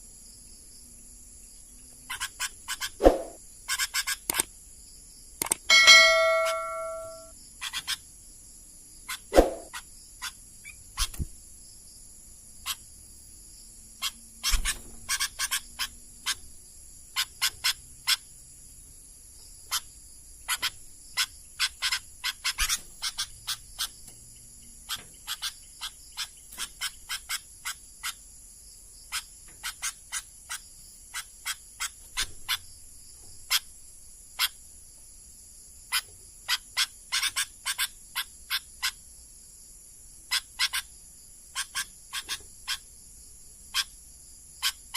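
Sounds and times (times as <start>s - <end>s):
bird giving sharp call notes: 5.7s - 7.3s
steady high-pitched drone: 5.7s - 7.3s.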